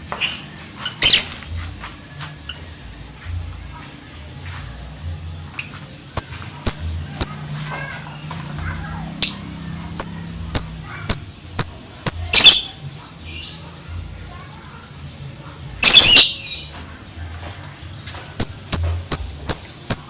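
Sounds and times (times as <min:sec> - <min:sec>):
lovebird sharp high chirps: 0:00.8 - 0:01.6, 0:10.0 - 0:12.7, 0:15.8 - 0:16.6, 0:18.4 - 0:20.0.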